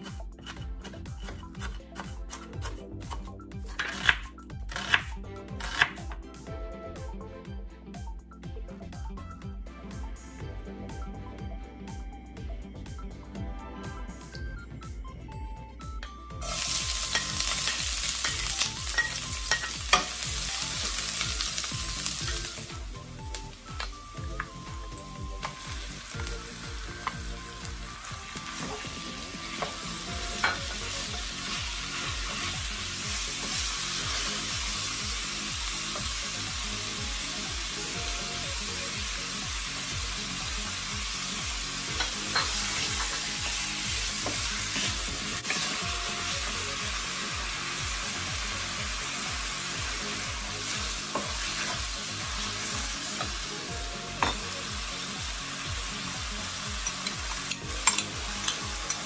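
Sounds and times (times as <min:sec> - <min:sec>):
meat frying in oil: 0:16.4 - 0:59.0.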